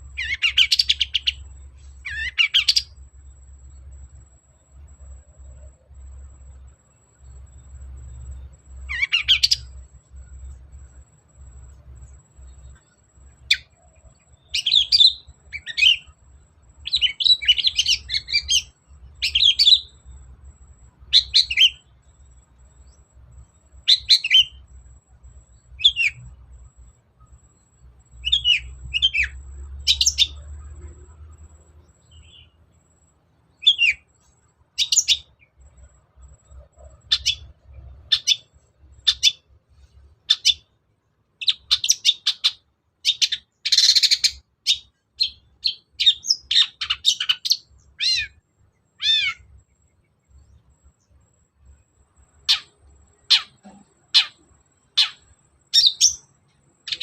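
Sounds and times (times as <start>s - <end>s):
bird scratchy chattering song: 0.2s - 3.0s, 8.9s - 9.7s, 36.9s - 38.5s, 40.3s - 40.7s, 41.4s - 48.4s, 49.0s - 49.5s, 52.4s - 57.0s.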